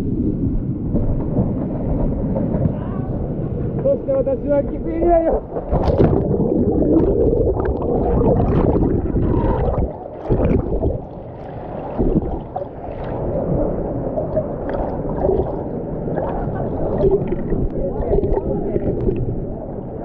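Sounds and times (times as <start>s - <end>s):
knocks underwater: 4.7s - 11.2s, 11.9s - 19.4s
river water sloshing and gurgling: 5.2s - 20.0s.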